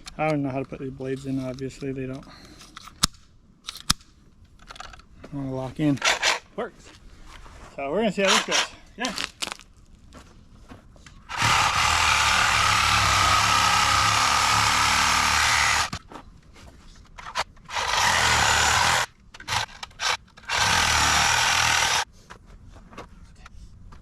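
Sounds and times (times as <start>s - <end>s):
reciprocating saw cutting wood: 11.3s - 16.0s, 17.7s - 22.1s.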